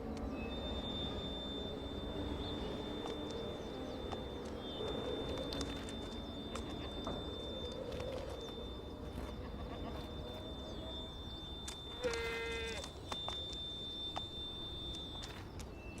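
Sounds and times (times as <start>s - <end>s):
faint steady high tone: 0.0s - 16.0s.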